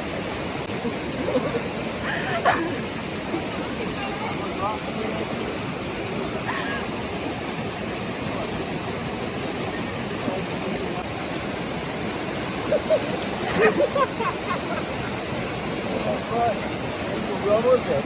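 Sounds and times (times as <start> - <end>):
river water rushing: 0.0 - 18.0
voices: 1.3 - 5.6, 12.4 - 18.0.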